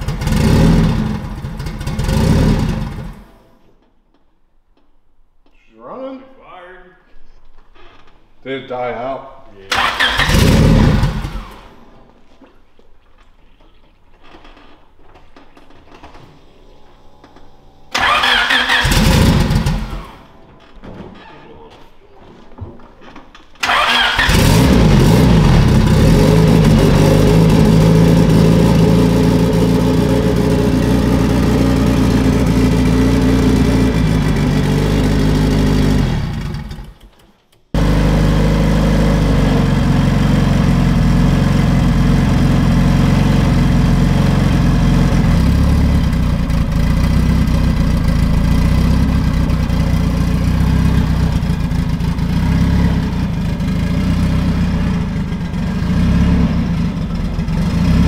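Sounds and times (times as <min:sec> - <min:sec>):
car engine starting and revving: 0:00.0 - 0:03.4, 0:09.7 - 0:11.8, 0:17.8 - 0:20.3, 0:23.6 - 0:37.0, 0:37.8 - 0:58.0.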